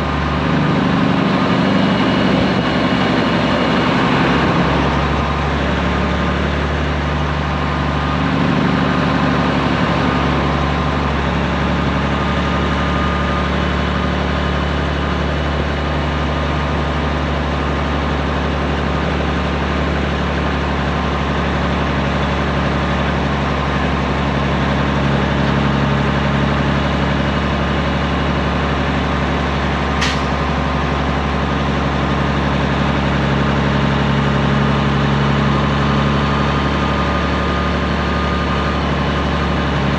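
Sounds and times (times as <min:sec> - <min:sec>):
diesel truck engine droning: 0:00.0 - 0:39.9
sharp click: 0:30.0 - 0:30.4.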